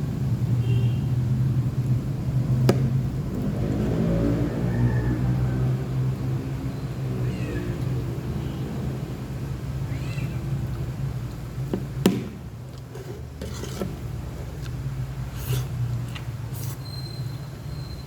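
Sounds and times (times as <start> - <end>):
cat meowing: 7.1 - 7.9.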